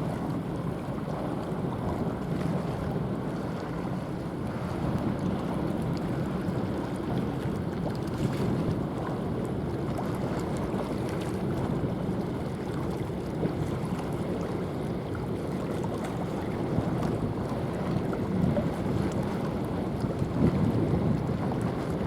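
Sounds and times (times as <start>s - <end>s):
sea water washing: 0.0s - 22.0s
wind buffeting microphone: 0.0s - 22.0s.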